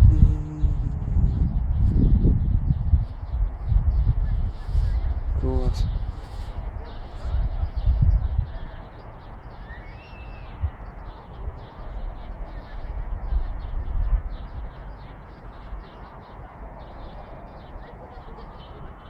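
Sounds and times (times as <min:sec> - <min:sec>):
microphone rumbling bumps: 0:00.0 - 0:06.2
birds chirping: 0:00.0 - 0:19.0
whistled bird call: 0:09.6 - 0:10.7.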